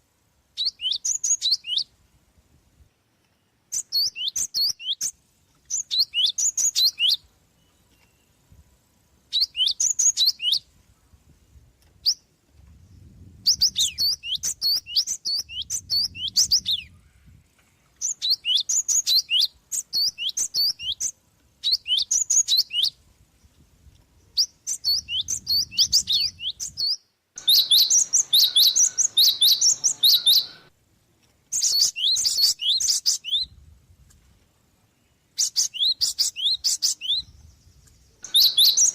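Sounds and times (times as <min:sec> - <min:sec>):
sparrow chirping: 0:00.5 - 0:01.9, 0:03.7 - 0:08.3, 0:09.3 - 0:10.7, 0:13.0 - 0:17.0, 0:18.0 - 0:23.0, 0:24.3 - 0:30.7, 0:31.5 - 0:33.5, 0:35.4 - 0:38.9.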